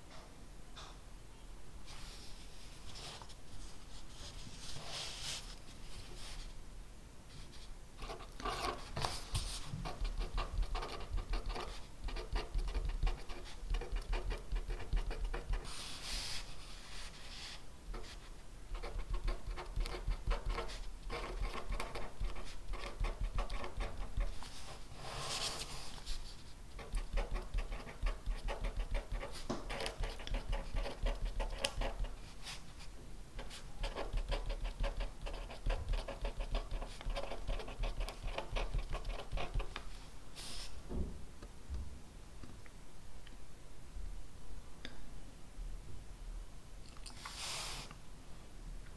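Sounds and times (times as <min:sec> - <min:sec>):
pen scratching on paper: 0:08.0 - 0:15.8, 0:17.9 - 0:25.7, 0:26.7 - 0:32.2, 0:33.4 - 0:39.8.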